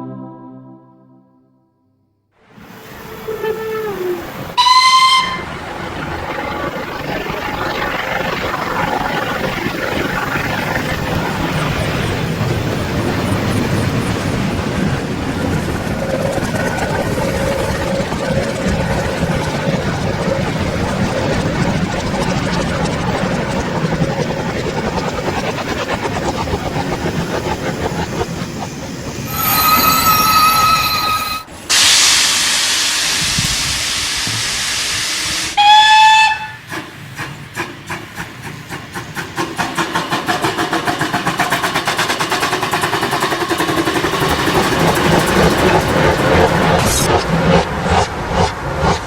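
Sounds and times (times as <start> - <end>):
steam locomotive whistle: 3.0 - 5.6, 29.2 - 36.7
loud steam hiss: 31.5 - 35.7.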